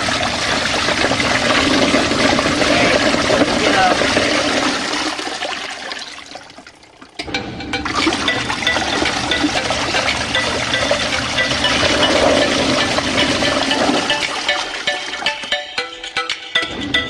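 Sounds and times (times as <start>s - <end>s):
washing machine water churning: 0.0s - 15.6s
clicks: 7.2s - 14.6s.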